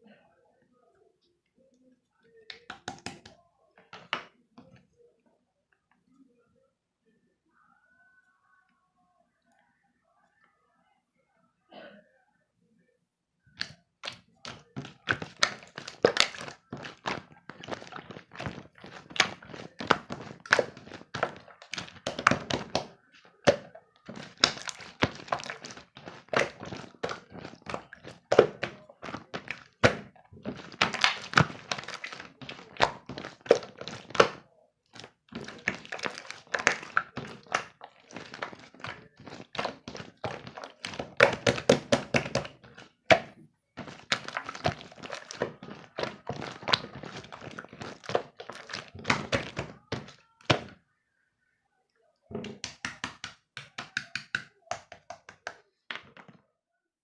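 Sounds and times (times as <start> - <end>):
rapid thunks and taps: 52.3 - 56.4.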